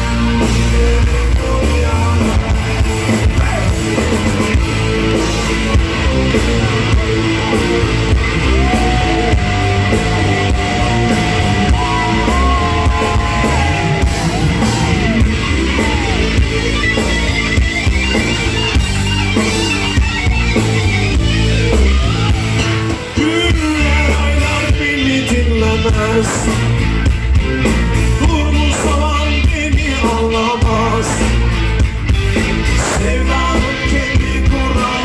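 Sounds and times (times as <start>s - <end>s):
live rock band playing: 0.0s - 35.0s
held lead guitar note: 4.7s - 23.0s.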